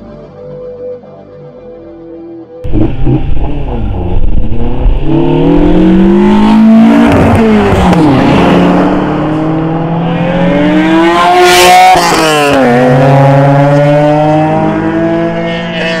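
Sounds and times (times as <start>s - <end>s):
rush of noise: 2.6s - 11.4s
car engine accelerating: 2.6s - 16.0s.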